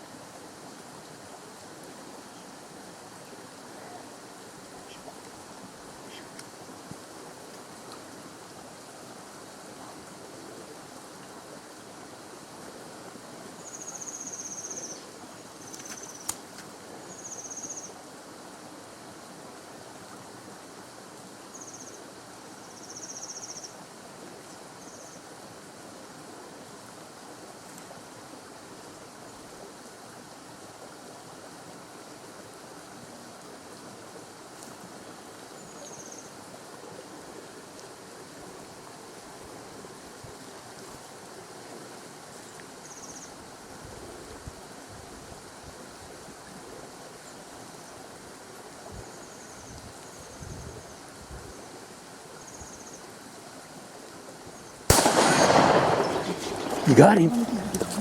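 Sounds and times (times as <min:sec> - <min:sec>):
steady rushing hiss: 0:54.9 - 0:58.0.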